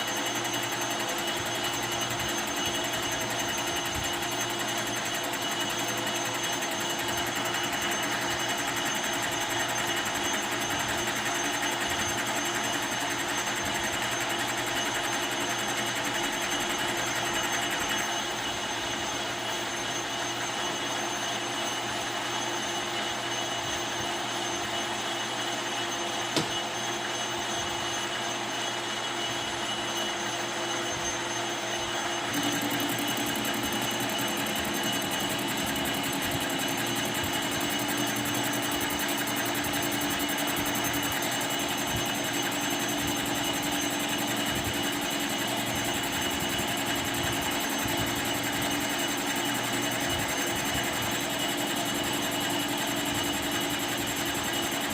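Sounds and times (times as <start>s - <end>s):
lathe machine humming: 0.0s - 54.9s.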